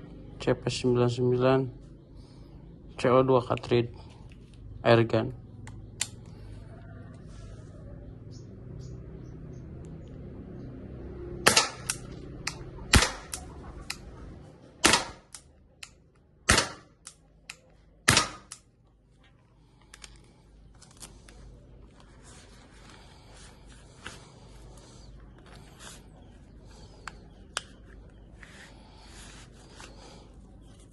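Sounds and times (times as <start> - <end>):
air pistol shots: 11.4 - 12.0, 12.9 - 13.4, 14.8 - 15.4, 16.5 - 17.1, 18.0 - 18.6.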